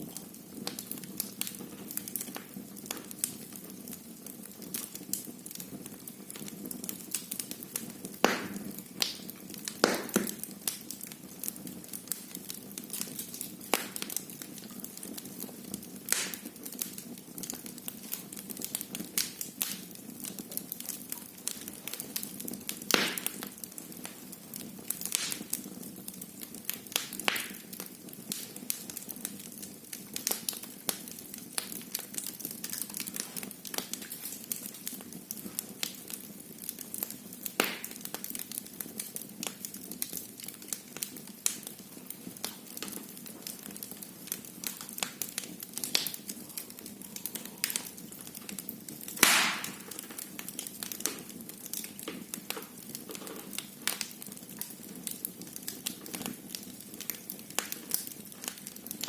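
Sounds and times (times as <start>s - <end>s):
wood fire crackling: 0.0s - 59.0s
loud fire pops: 4.7s - 14.6s, 16.1s - 17.7s, 20.8s - 25.8s, 26.6s - 29.6s, 36.9s - 38.5s, 44.3s - 59.0s.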